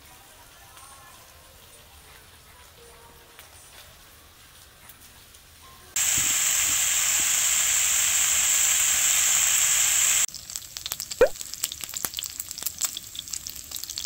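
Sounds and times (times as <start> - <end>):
food sizzling in a hot pan: 5.9 - 14.0.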